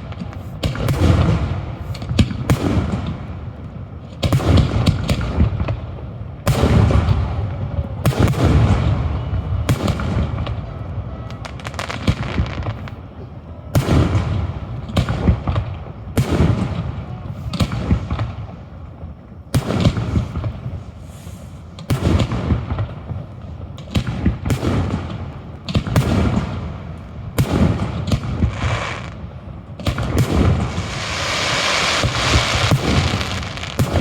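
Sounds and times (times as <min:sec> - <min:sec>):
fireworks booming: 0:00.0 - 0:34.0
steady hiss: 0:30.6 - 0:34.0.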